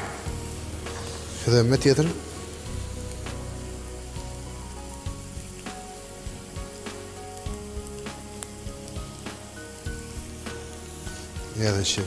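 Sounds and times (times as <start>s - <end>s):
onion frying in a pan: 0.0s - 12.0s.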